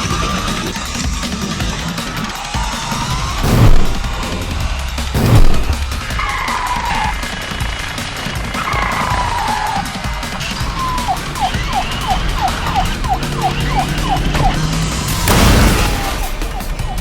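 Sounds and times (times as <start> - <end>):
music: 0.0 - 17.0
loud noisy whoosh: 3.1 - 7.0
siren of falling chirps: 10.7 - 17.0.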